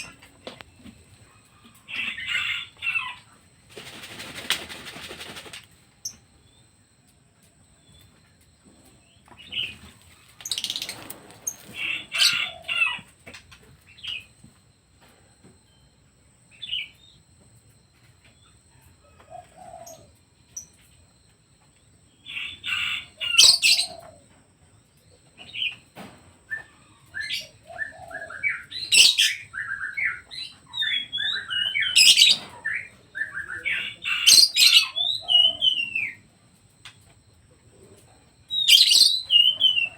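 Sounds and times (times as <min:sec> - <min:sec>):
pet birds chirping: 0:00.0 - 0:06.8, 0:07.8 - 0:14.4, 0:16.4 - 0:20.8, 0:21.9 - 0:36.3, 0:37.8 - 0:39.9
wing flapping: 0:03.7 - 0:05.8, 0:09.7 - 0:12.6.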